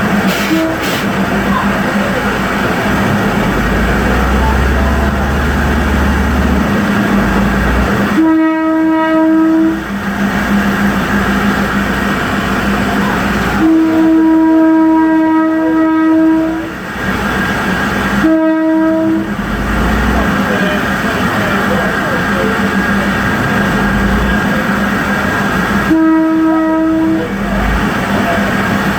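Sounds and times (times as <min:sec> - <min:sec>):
train engine drone: 0:00.0 - 0:28.9
train horn blasts: 0:00.2 - 0:01.1, 0:03.4 - 0:10.0, 0:13.4 - 0:16.8, 0:18.1 - 0:20.2, 0:25.8 - 0:27.5.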